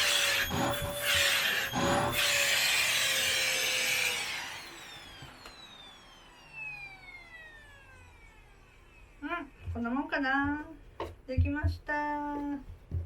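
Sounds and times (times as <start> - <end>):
vacuum cleaner motor whine: 0.0 - 10.3.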